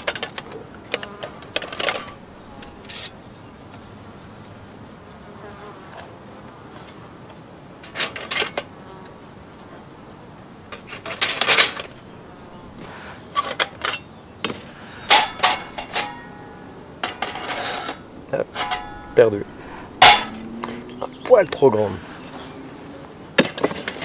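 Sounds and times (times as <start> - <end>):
metal cooking gear clinking: 15.1 - 20.4.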